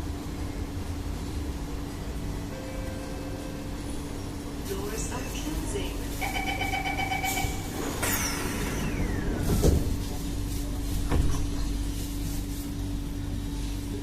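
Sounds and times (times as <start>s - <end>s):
train hum: 0.0s - 14.0s
door warning chime: 6.2s - 8.8s
train doors sliding shut: 7.1s - 12.0s.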